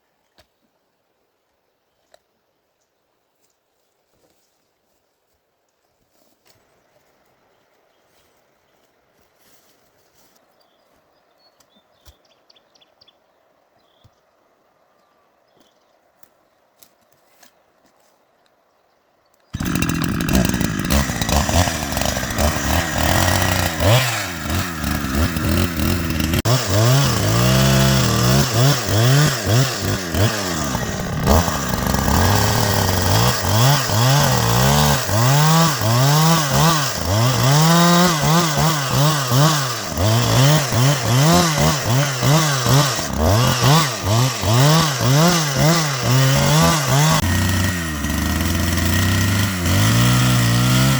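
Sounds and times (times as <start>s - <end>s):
chainsaw revving: 19.6s - 50.9s.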